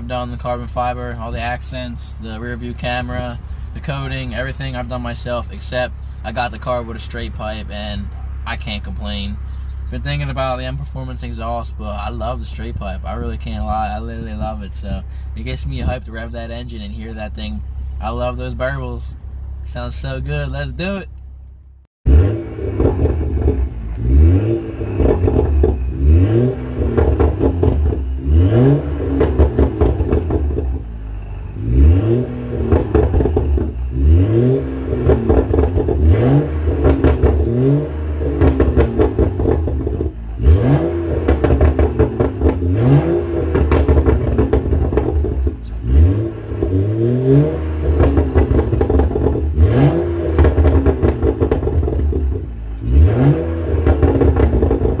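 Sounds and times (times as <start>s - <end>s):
car engine revving: 0.0s - 55.0s
exhaust burbles: 0.0s - 55.0s.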